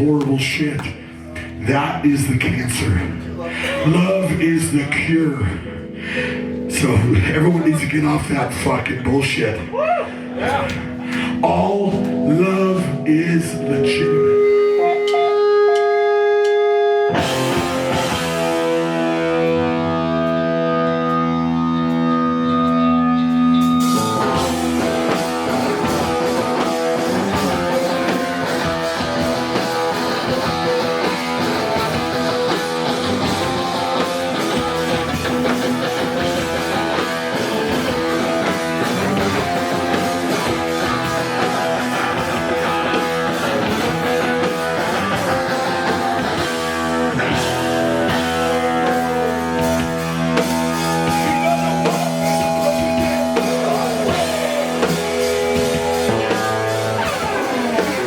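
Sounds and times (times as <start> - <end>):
live rock band playing: 0.0 - 58.0
held electric guitar chord: 10.2 - 58.0.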